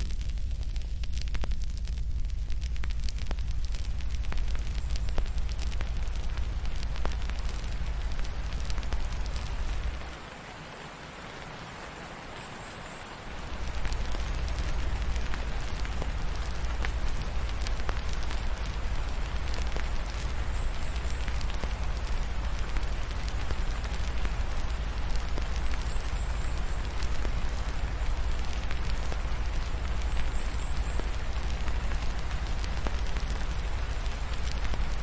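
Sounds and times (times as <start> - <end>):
deep low rumble: 0.0 - 10.1
rain hiss: 0.0 - 35.0
wood fire crackling: 0.0 - 35.0.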